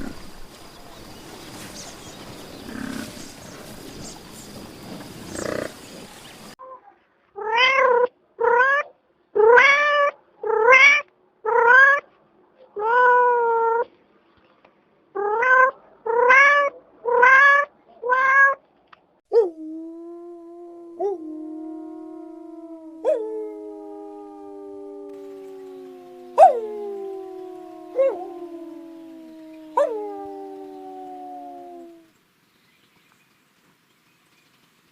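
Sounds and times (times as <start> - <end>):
cat meowing: 7.4 - 12.0, 15.2 - 18.6, 24.4 - 32.0.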